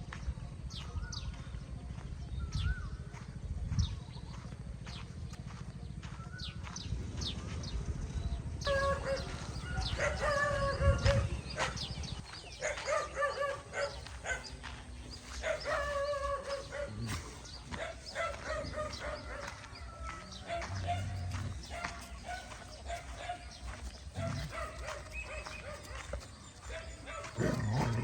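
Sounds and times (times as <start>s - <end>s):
animal calling: 26.7s - 28.0s.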